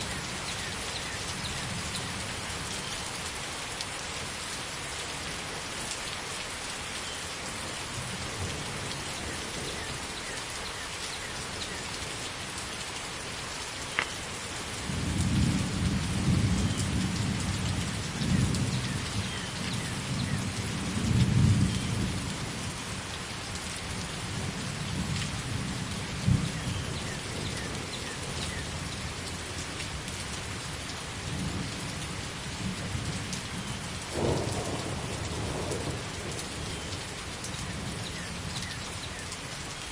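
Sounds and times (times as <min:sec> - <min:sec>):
steady rain falling: 0:00.0 - 0:39.9
rolling thunder: 0:34.1 - 0:36.9.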